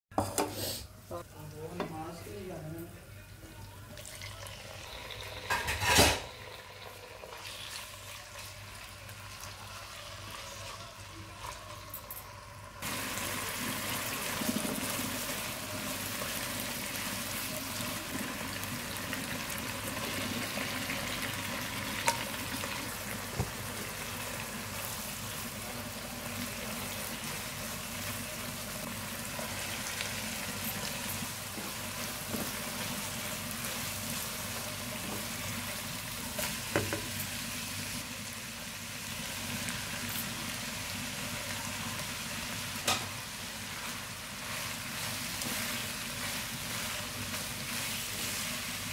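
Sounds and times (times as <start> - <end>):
food sizzling in hot oil: 4.1 - 48.9
spatula stirring in wok: 43.3 - 48.9.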